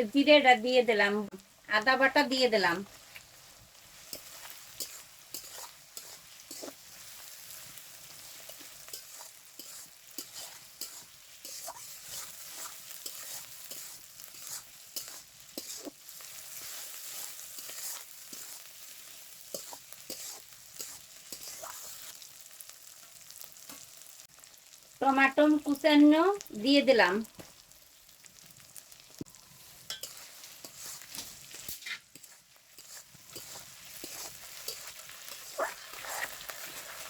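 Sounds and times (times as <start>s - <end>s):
food sizzling in hot oil: 0.0s - 37.0s
spatula scraping a pan: 2.9s - 22.2s, 29.6s - 37.0s.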